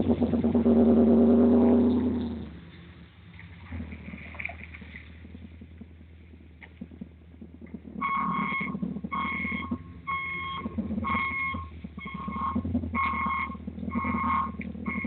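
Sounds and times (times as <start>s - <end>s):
low steady hum: 0.0s - 15.0s
electronic warning beeps: 8.0s - 15.0s.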